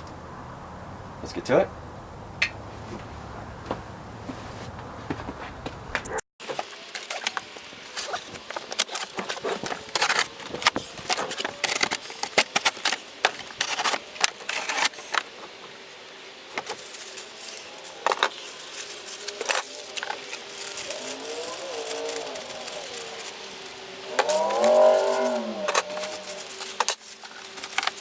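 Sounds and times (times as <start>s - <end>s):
cardboard and packing handled: 6.4s - 28.0s.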